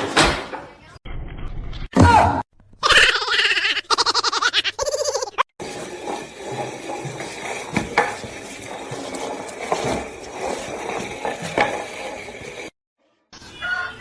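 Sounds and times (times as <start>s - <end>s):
knocks and clatter: 5.6s - 12.7s.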